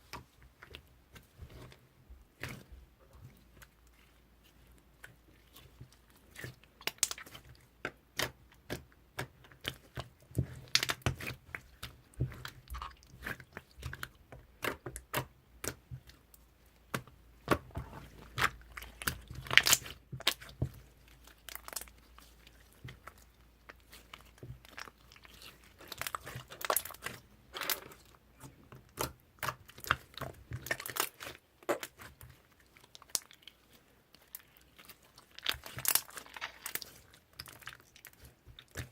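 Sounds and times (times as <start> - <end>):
slime crackling and popping: 17.0 - 22.1, 22.8 - 28.0, 28.9 - 38.9.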